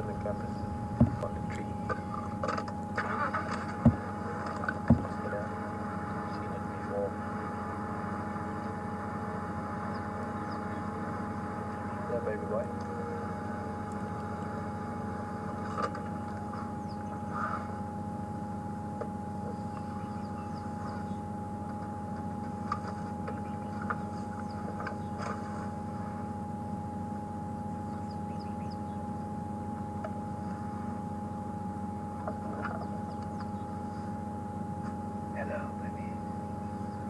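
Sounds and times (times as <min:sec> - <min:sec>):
vehicle engine idling: 0:00.0 - 0:37.0.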